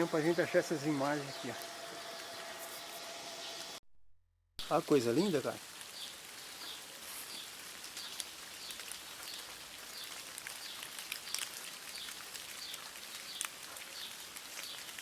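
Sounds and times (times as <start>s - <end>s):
bird calling: 0.0s - 3.8s
steady hiss: 0.0s - 3.8s, 4.6s - 7.6s.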